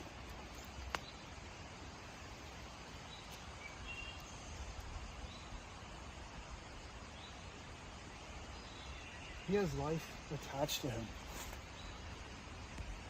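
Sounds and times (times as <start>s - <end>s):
background hiss and rumble: 0.0s - 13.0s
faint bird chirps: 2.1s - 5.8s.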